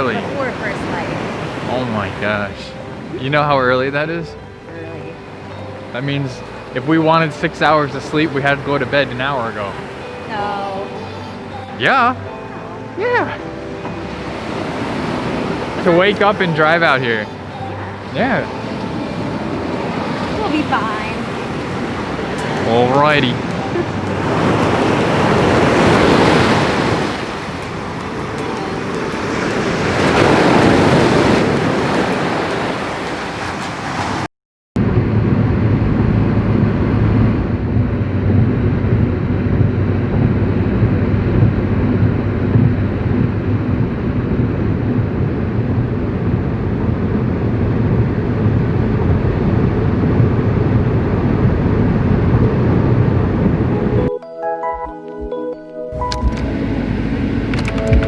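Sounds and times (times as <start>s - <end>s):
ocean surf washing onto beach: 0.0s - 54.1s
faint hum: 34.8s - 54.1s
steady low rumble: 34.8s - 54.1s, 56.0s - 58.0s.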